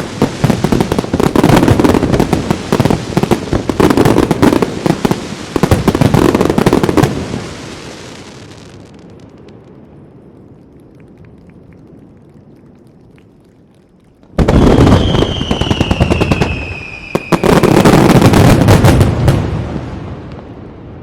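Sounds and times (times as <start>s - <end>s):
firework bursts with crackle: 0.0s - 9.8s, 14.3s - 21.0s
echo of fireworks: 0.0s - 12.2s, 14.2s - 21.0s.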